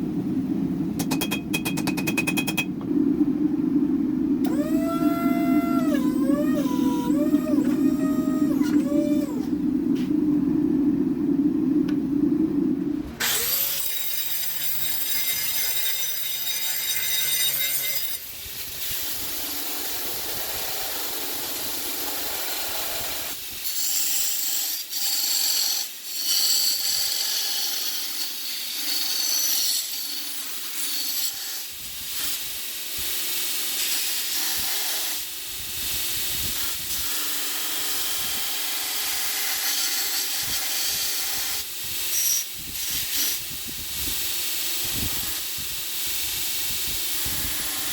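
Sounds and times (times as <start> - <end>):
power tools grinding steel blade: 13.2 - 18.3.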